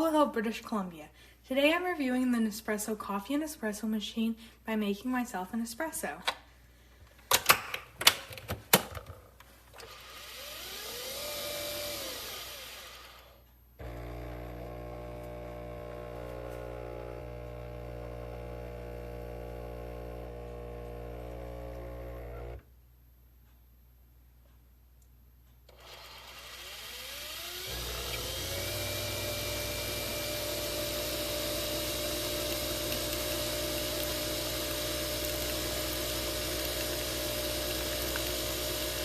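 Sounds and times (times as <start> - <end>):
coffee machine motor whir: 9.7 - 22.7, 25.7 - 39.0
pump humming: 9.8 - 22.6, 25.7 - 39.0.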